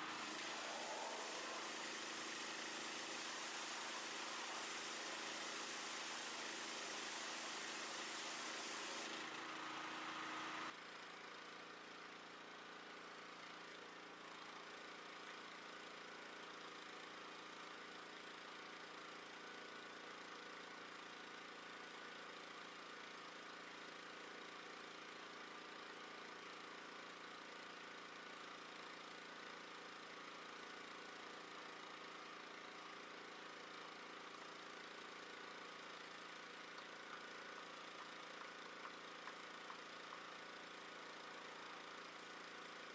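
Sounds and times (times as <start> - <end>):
pressure washer humming: 0.0 - 10.7
spray hiss: 0.0 - 10.7.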